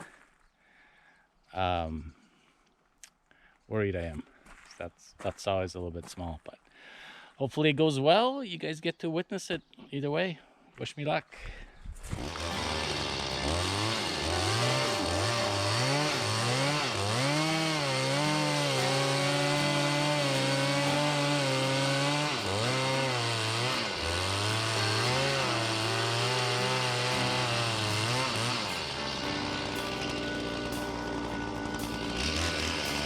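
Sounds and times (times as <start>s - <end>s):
chainsaw cutting tree trunk: 12.1s - 33.0s.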